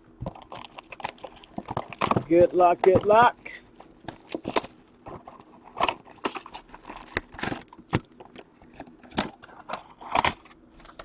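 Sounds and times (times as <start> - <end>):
packaging torn and crinkled: 0.3 - 2.1, 3.7 - 8.4.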